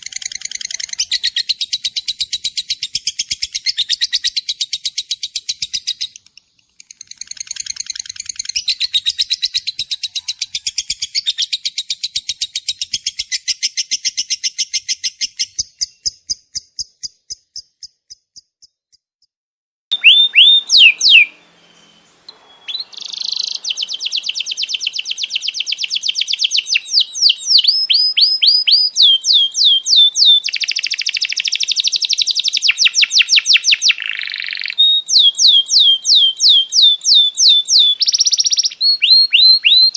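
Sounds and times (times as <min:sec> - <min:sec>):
bird whistling downward notes: 0:19.9 - 0:39.9
songbird trilling: 0:19.9 - 0:39.9.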